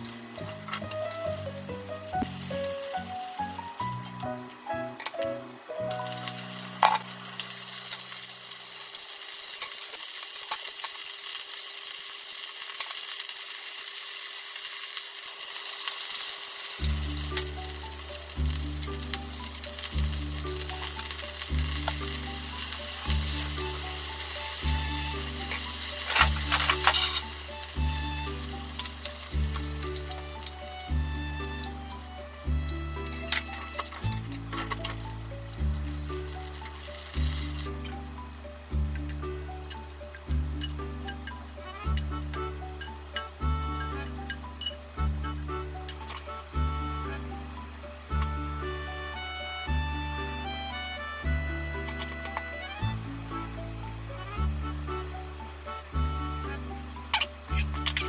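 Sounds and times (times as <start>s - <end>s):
shrimp sizzling in a frying pan: 0.0s - 5.2s, 5.8s - 58.0s
background music with steady beat: 0.0s - 7.6s, 16.8s - 58.0s
chopsticks stirring: 16.6s - 44.9s.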